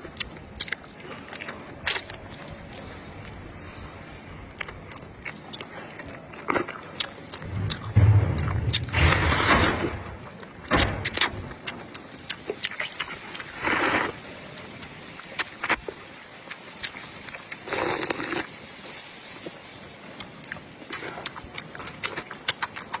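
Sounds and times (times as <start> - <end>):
biting and chewing clicks: 0.0 - 3.6, 4.5 - 8.0, 20.2 - 23.0
low thump: 7.4 - 11.8
slurping noodle soup: 12.7 - 19.4.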